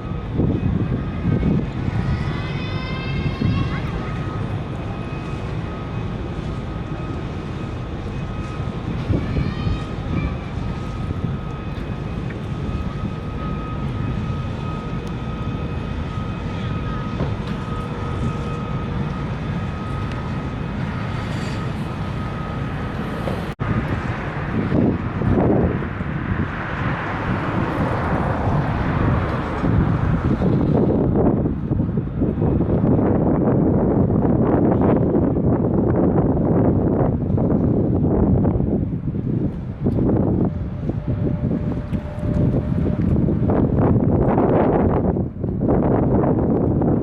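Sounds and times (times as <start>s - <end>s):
constant high whine: 0.0s - 47.0s
ferry engines rumbling: 0.0s - 47.0s
rushing wind: 0.0s - 47.0s
water noise: 39.2s - 45.5s.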